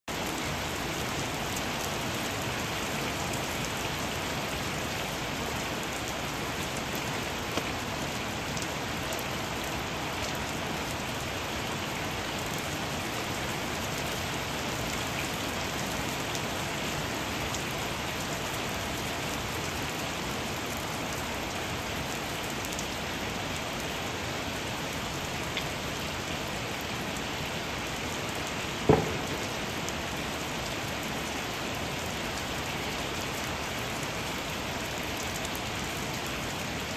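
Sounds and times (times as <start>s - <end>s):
rain splashing into standing water: 0.1s - 36.9s
short knock: 28.9s - 29.5s.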